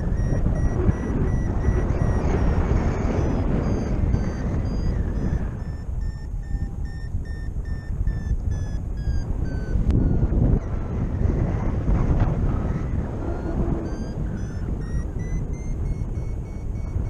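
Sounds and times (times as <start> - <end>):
variometer short high beeps: 0.0 - 11.4, 12.6 - 17.0
wind rushing over microphone: 0.0 - 17.0.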